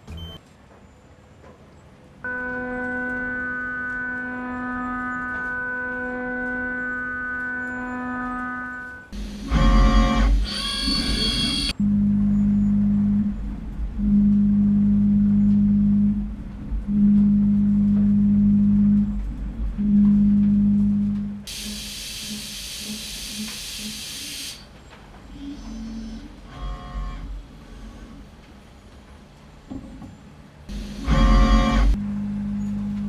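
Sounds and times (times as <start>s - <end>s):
cnc mill cutting steel: 2.3s - 11.8s, 21.5s - 24.6s, 30.7s - 32.0s
loud hiss: 21.5s - 24.7s.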